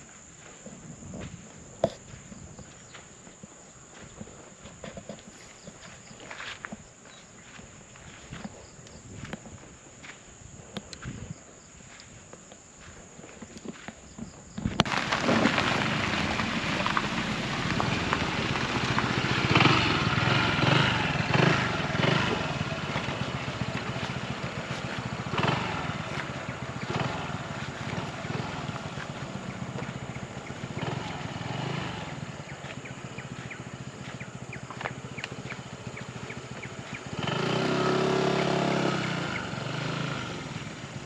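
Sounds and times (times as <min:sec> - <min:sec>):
engine running: 0:14.7 - 0:41.0.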